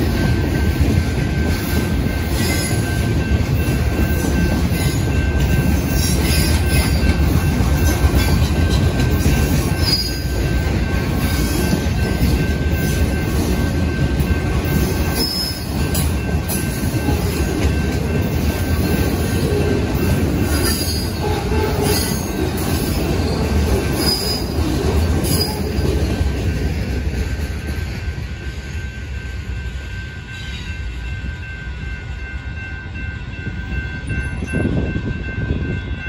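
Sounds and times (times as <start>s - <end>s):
freight train wheels rumbling: 0.0s - 36.0s
high wheel squeals: 23.2s - 24.6s.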